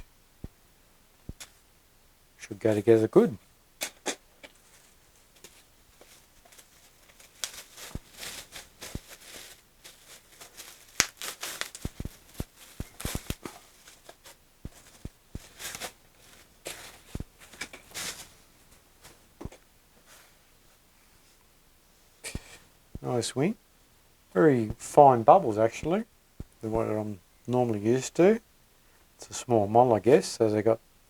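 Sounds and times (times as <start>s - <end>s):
plastic packaging crinkling: 4.4s - 19.4s.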